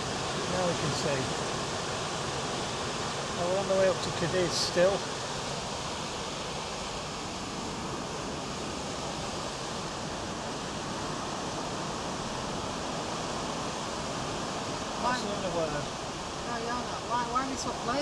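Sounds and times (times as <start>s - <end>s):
wind and sea rushing: 0.0s - 18.0s.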